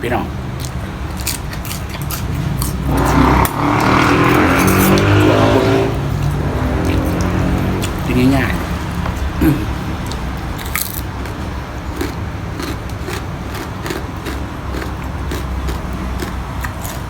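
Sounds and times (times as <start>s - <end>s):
person chewing crunchy food: 0.5s - 17.0s.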